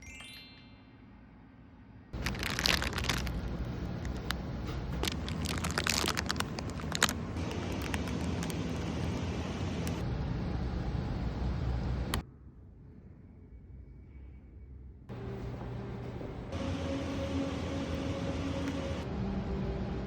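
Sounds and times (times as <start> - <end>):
steady low rumble: 2.0 - 12.9
crunching and crackling clicks: 2.2 - 10.0.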